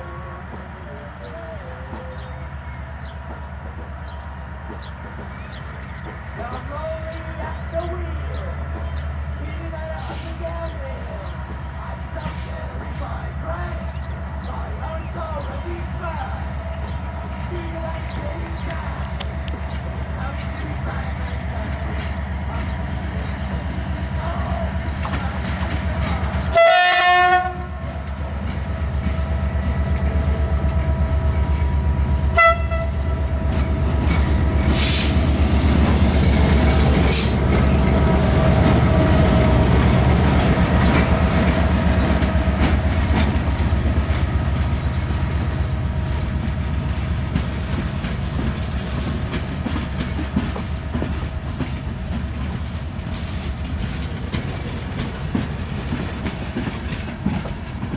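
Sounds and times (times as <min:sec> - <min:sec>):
diesel locomotive rumbling: 0:00.0 - 0:57.9
wheels clattering over rail joints: 0:16.4 - 0:22.8, 0:35.8 - 0:57.9
train horn blast: 0:26.5 - 0:28.0, 0:32.3 - 0:33.3
loud hiss: 0:34.7 - 0:37.6.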